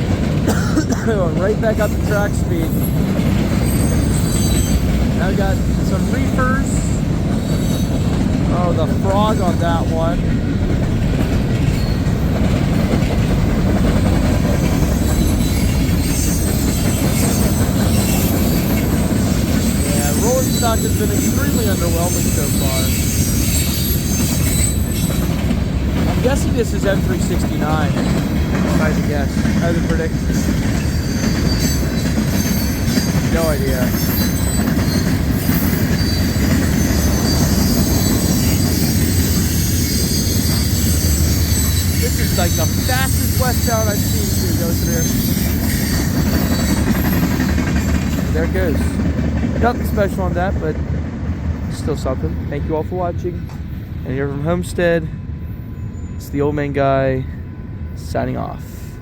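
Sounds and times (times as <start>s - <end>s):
freight train wheels rumbling: 0.0s - 59.0s
faint high squealing: 2.0s - 10.0s, 14.8s - 25.4s, 26.2s - 47.3s
high-pitched ringing: 19.6s - 25.3s, 28.8s - 47.3s.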